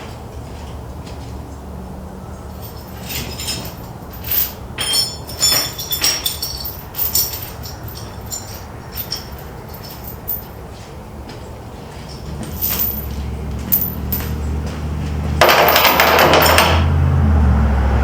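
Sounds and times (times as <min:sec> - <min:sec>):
metal chain clinking: 0:02.5 - 0:10.7, 0:12.1 - 0:14.8, 0:15.4 - 0:16.9.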